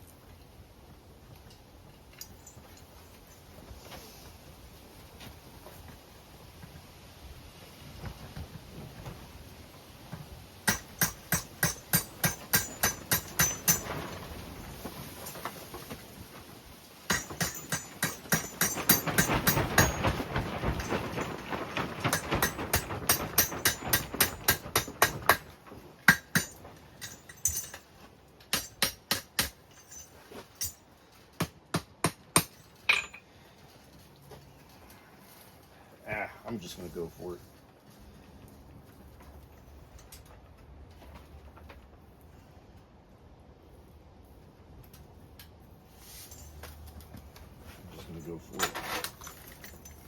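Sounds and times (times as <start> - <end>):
hammer striking steel on anvil: 10.6 - 13.9, 17.1 - 20.0, 26.1 - 27.8, 28.5 - 29.6.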